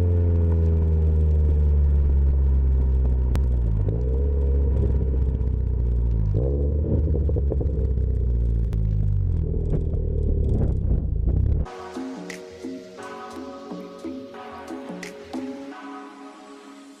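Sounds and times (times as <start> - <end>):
car engine droning at low revs: 0.0 - 11.7.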